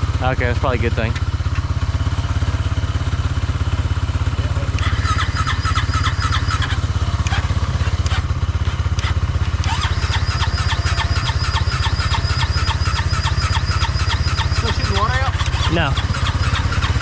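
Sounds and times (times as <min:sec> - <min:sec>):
rhythmic higher chatter: 0:04.4 - 0:17.0
boat engine cranking: 0:04.7 - 0:17.0.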